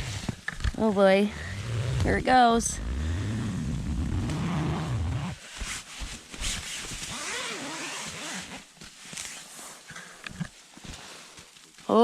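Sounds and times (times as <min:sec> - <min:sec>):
tent fabric and snow rustling: 0:00.0 - 0:09.9, 0:10.6 - 0:12.0
brushing and scraping: 0:05.1 - 0:09.9.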